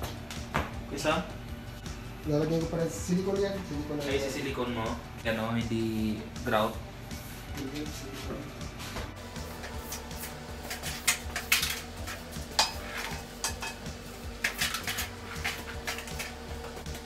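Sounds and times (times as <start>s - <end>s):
hand tools clicking and clattering: 10.6s - 16.4s.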